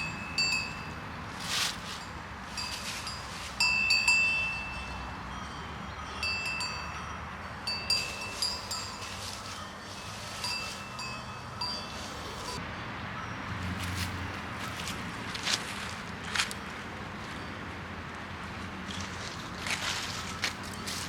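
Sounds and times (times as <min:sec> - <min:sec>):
small metal bells ringing: 0:00.0 - 0:12.6.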